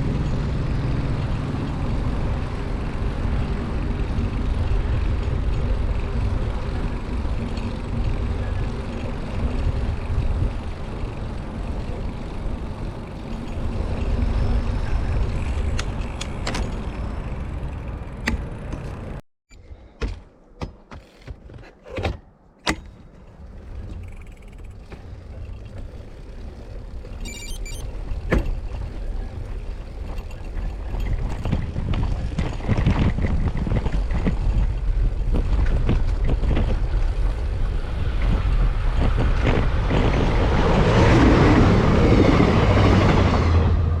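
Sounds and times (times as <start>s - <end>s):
wind buffeting microphone: 27.8s - 44.0s.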